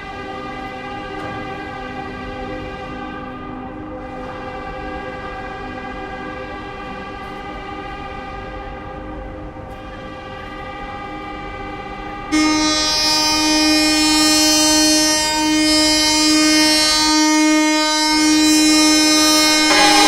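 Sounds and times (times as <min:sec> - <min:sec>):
ship's horn blast: 0:16.1 - 0:20.0.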